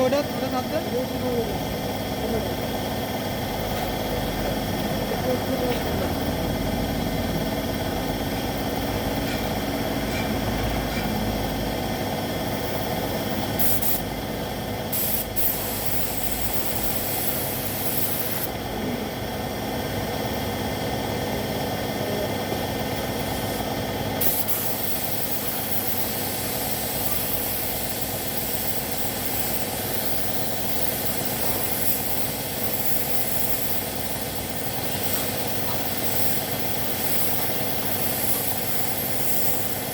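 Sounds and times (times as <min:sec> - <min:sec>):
air compressor humming: 0:00.0 - 0:39.9
air spray gun hissing: 0:12.5 - 0:14.1, 0:14.8 - 0:18.5, 0:23.0 - 0:39.9.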